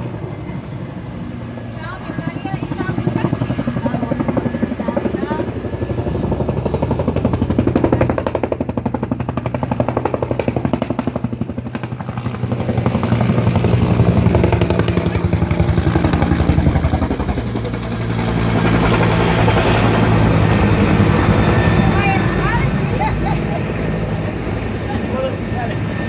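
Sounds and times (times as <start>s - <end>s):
engine drone: 0.0s - 26.0s
helicopter rotor beating: 0.0s - 26.0s.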